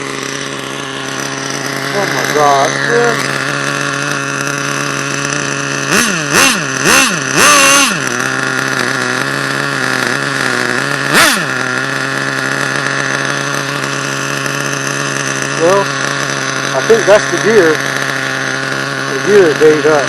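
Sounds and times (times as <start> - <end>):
small nitro engine idling and revving: 0.0 - 20.0.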